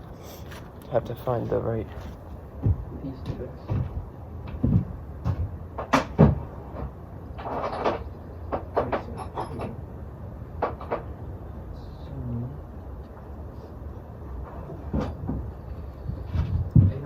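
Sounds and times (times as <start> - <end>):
rattling clatter: 5.9 - 9.8
hand tools knocking and clinking: 8.6 - 9.8.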